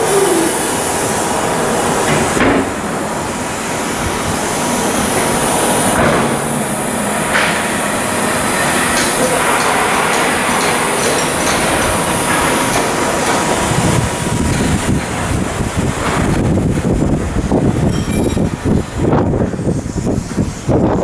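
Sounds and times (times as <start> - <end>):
steady machinery hiss: 0.0 - 21.0
sharp metal knocks: 8.4 - 14.8.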